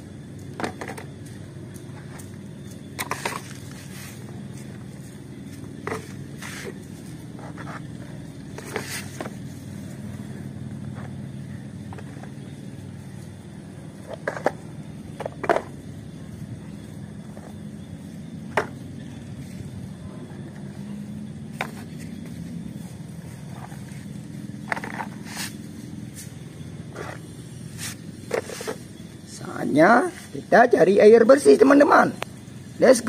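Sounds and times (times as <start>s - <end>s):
steady low hum: 0.0s - 33.0s
plastic toys knocking and clicking: 0.6s - 1.2s, 14.0s - 14.6s, 15.2s - 15.8s.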